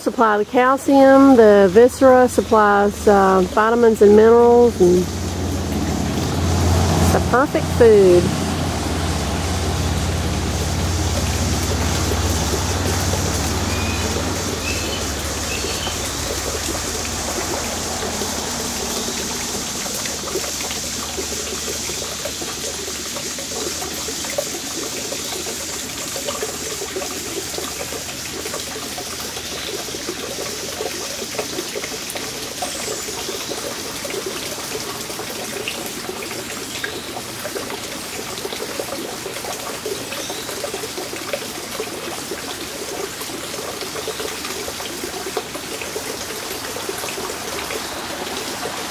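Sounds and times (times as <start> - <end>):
water trickling and pouring: 0.0 - 48.9.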